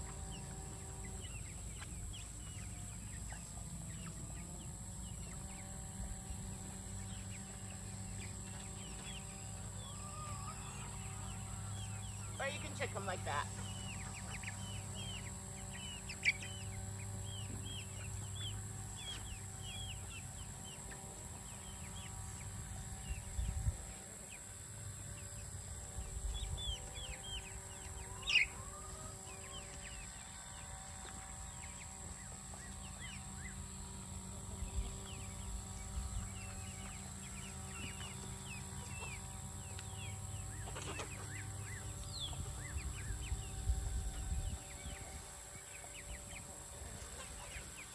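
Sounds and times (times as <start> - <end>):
chicks peeping: 0.0 - 47.9.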